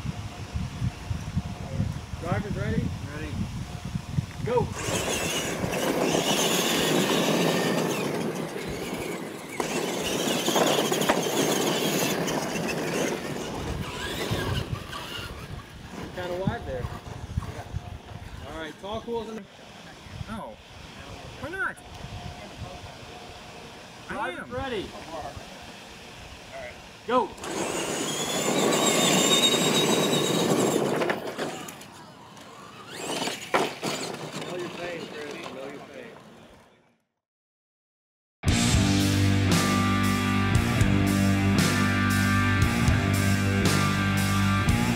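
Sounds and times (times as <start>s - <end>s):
toy truck motor whine: 4.7s - 18.8s, 19.7s - 35.6s
tyres rushing on dirt and gravel: 4.7s - 19.8s, 27.4s - 36.8s
sharp knock of trucks on ramps: 33.0s - 34.4s.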